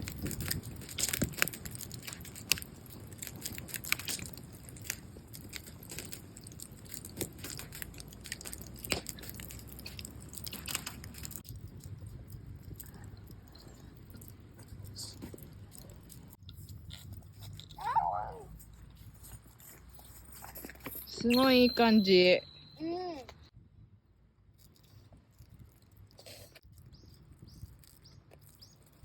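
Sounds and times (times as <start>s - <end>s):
campfire crackling and popping: 0.0s - 16.8s.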